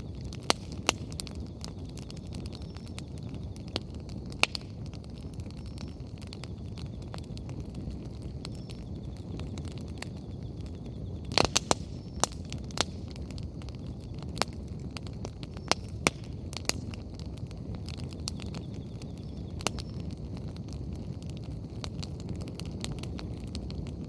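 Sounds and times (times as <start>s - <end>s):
bonfire burning with crackling pops: 0.0s - 24.0s.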